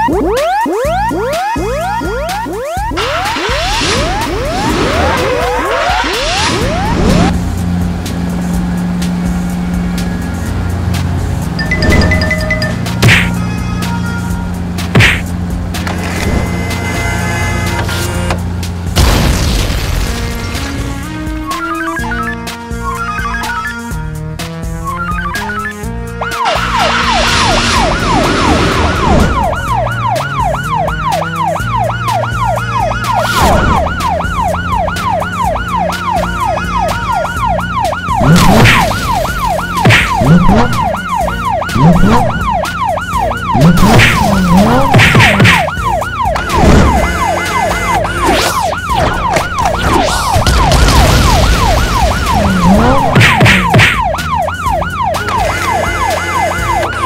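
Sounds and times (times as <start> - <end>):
cartoon police siren yelp: 0.0 - 7.4, 21.4 - 24.0, 24.8 - 57.0
background music: 0.0 - 57.0.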